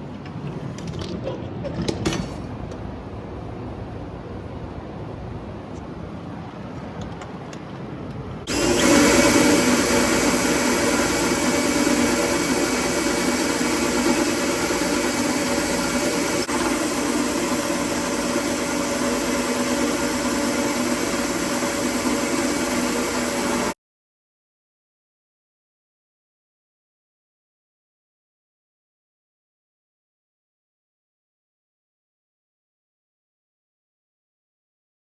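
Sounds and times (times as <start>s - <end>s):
power tool motor running: 8.5s - 23.8s.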